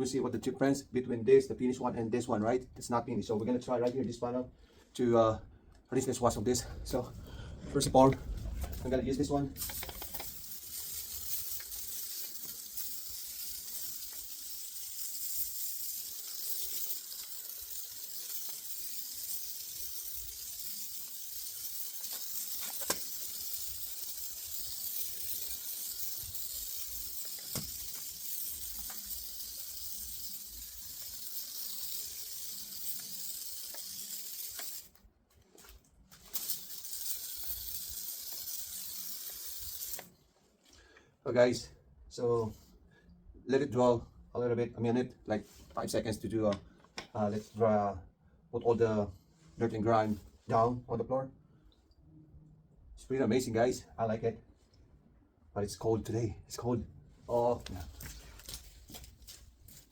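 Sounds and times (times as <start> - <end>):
sprayer hissing: 9.5 - 34.9, 36.3 - 40.1.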